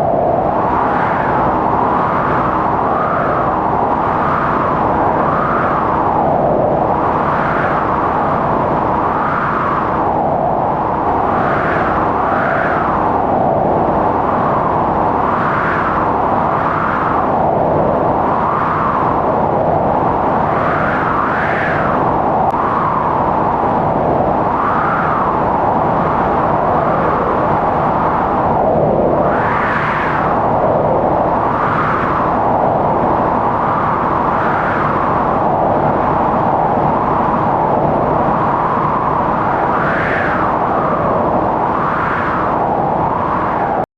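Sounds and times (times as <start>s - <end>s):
howling wind: 0.0s - 43.9s.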